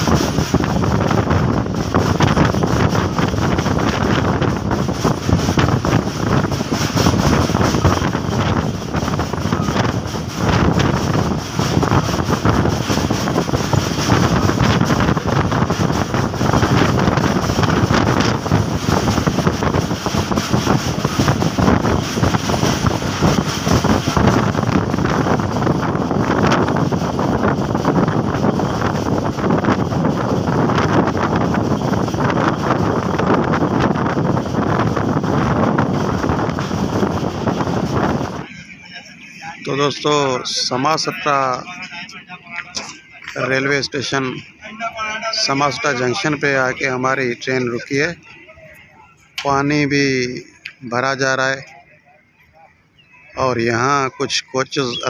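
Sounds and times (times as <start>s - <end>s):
train wheels rumbling and rattling: 0.0s - 39.1s
wind buffeting microphone: 0.0s - 51.0s.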